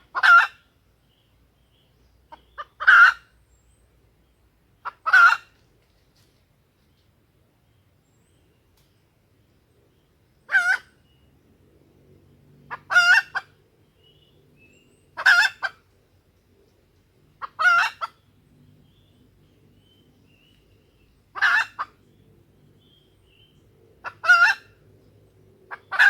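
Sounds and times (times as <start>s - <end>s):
junglefowl hen clucking: 0.0s - 0.6s, 2.3s - 3.3s, 4.8s - 5.6s, 10.5s - 11.0s, 12.7s - 13.6s, 15.2s - 15.8s, 17.4s - 18.2s, 21.3s - 22.0s, 24.0s - 24.8s, 25.7s - 26.0s.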